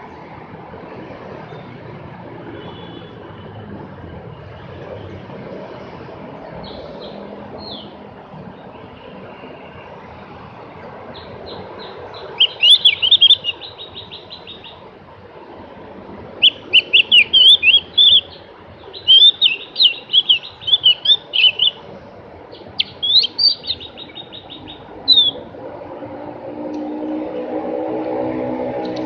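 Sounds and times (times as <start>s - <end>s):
bird twittering: 11.2s - 14.8s, 16.4s - 21.8s, 22.6s - 25.4s.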